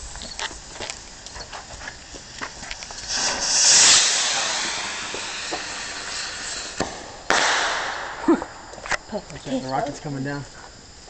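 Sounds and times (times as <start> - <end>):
firework rocket hissing: 0.0 - 9.7
firework bang: 2.2 - 9.0.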